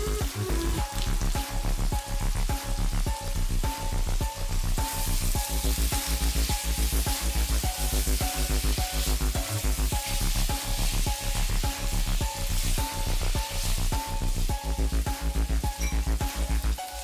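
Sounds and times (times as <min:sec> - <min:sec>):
background music with steady beat: 0:00.0 - 0:17.0
food sizzling in hot oil: 0:00.0 - 0:17.0
spatula stirring in a wok: 0:04.9 - 0:17.0.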